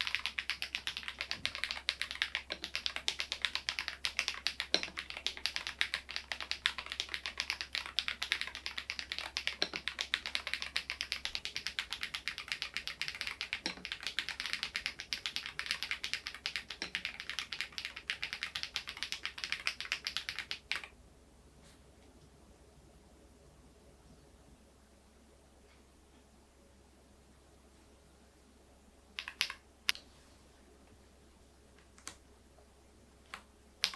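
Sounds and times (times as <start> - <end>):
mechanical keyboard typing: 0.0 - 20.9, 29.2 - 29.6, 33.3 - 33.9.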